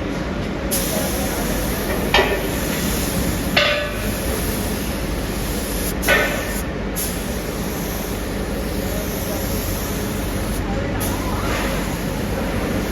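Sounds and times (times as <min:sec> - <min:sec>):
workshop machinery noise: 0:00.0 - 0:12.9.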